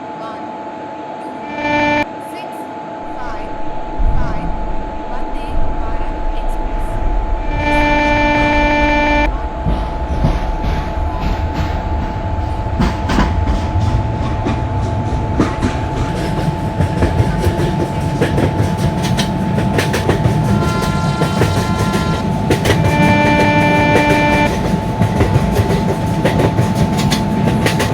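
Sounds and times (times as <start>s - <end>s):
train horn: 1.4s - 2.4s, 7.4s - 9.8s, 16.3s - 27.9s
train wheels clacking on rails: 7.6s - 27.9s.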